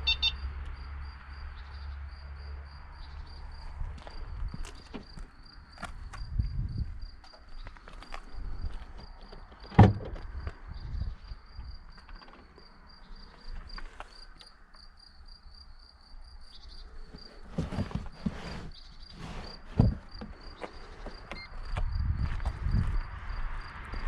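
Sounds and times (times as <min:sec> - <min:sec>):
faint high chirp: 0:00.0 - 0:00.4.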